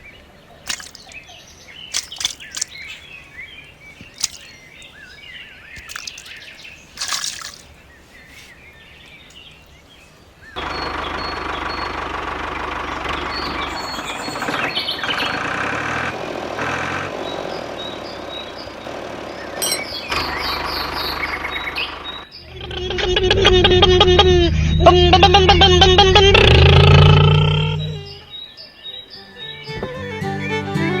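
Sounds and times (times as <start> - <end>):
birds chirping: 0.0 - 15.6, 17.1 - 30.7
diesel engine and water pump running: 1.8 - 5.1, 10.6 - 22.3.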